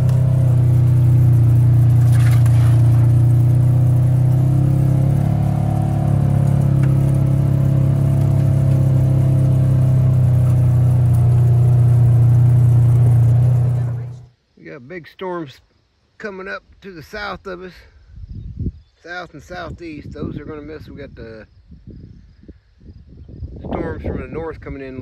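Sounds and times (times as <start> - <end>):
low mechanical hum: 0.0 - 14.3.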